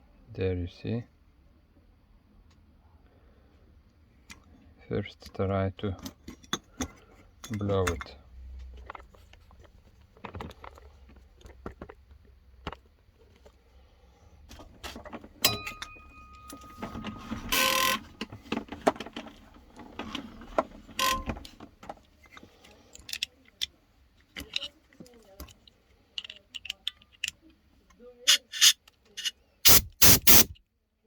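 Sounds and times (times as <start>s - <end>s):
hissing air blasts: 28.3s - 30.5s
metal parts and tools clinking: 28.3s - 30.6s.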